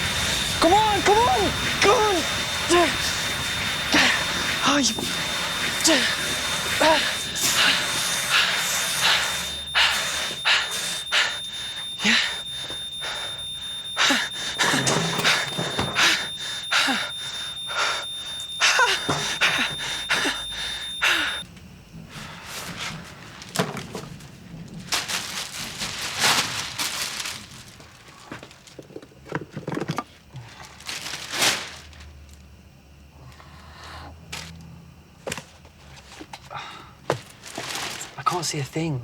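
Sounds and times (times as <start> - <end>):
smoke alarm high tone: 0.0 - 21.4.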